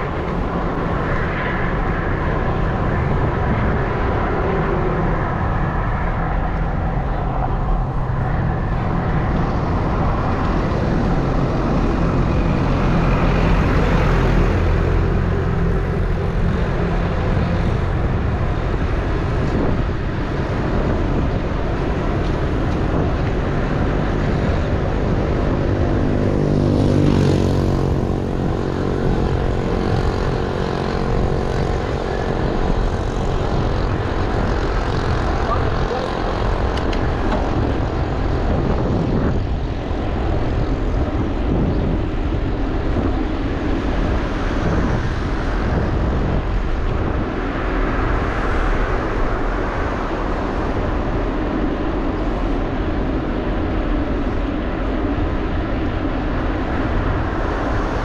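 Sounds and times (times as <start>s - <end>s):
vehicle engine droning: 0.0s - 58.0s
wind noise: 0.0s - 58.0s.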